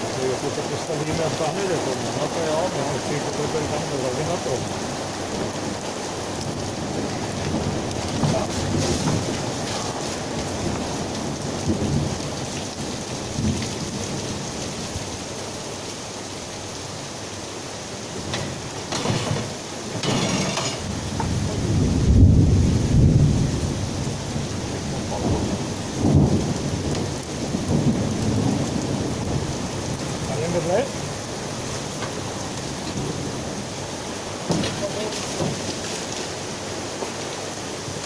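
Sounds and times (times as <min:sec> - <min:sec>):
heavy rain pouring: 0:00.0 - 0:38.0
thunder rumbling: 0:05.4 - 0:14.4, 0:18.0 - 0:35.8.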